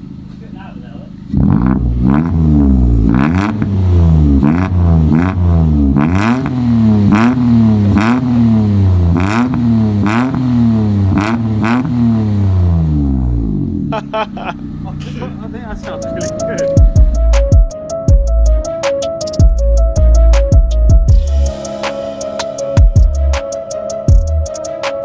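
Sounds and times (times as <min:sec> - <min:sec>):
car engine revving in quick blips: 0:00.0 - 0:13.9.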